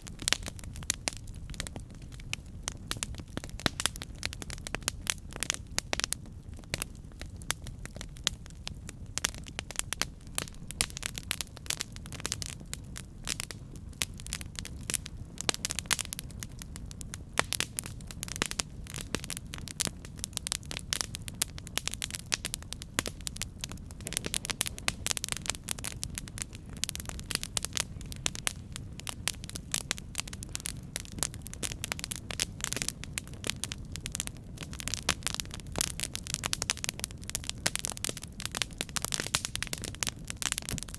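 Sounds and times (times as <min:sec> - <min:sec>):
campfire rumbling: 0:00.0 - 0:40.9
wood crackling and popping: 0:00.0 - 0:40.9.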